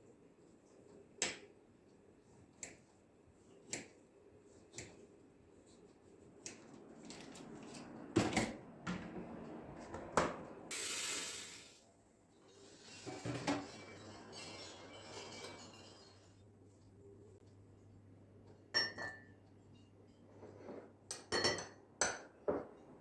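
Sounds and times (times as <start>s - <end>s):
brief hiss: 10.7s - 11.8s.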